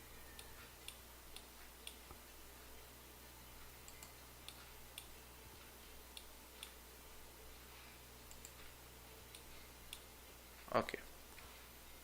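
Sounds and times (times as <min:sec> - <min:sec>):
low steady hum: 0:00.0 - 0:12.0
computer mouse clicks: 0:00.3 - 0:02.2, 0:03.8 - 0:05.1, 0:08.2 - 0:10.1.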